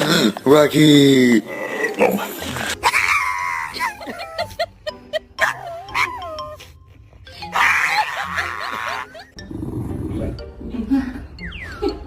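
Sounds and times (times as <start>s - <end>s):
dog whining and yipping: 5.4s - 6.8s.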